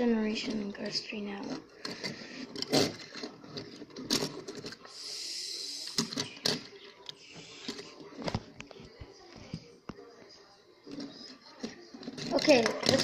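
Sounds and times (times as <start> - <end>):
toy cars clicking and knocking: 1.3 - 8.1, 10.9 - 13.0
hiss: 5.0 - 6.0.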